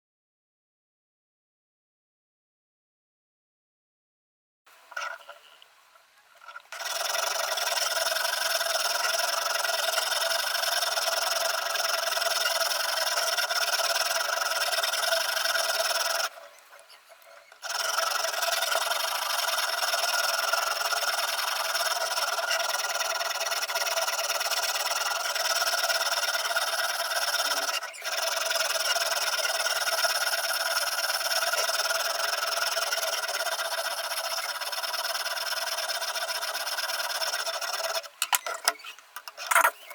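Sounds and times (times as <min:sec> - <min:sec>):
sharpening stone scraping knife: 0:38.6 - 0:39.9.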